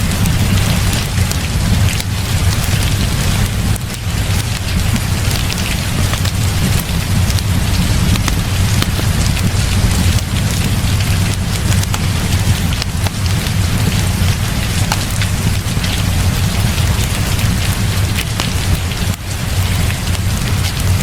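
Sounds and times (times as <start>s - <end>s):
heavy rain falling: 0.0s - 21.0s
sharp clicks: 0.2s - 16.2s.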